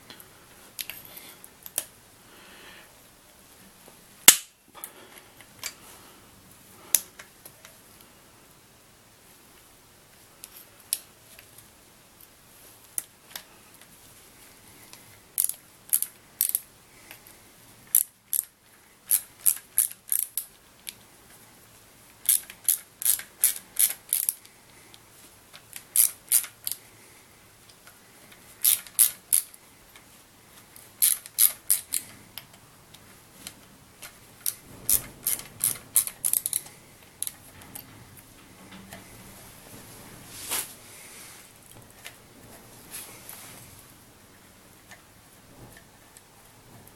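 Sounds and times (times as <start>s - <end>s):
ratchet wrench clicking: 19.1s - 20.5s, 22.2s - 24.4s, 25.7s - 26.8s, 28.6s - 29.6s, 31.0s - 32.0s, 34.4s - 37.4s.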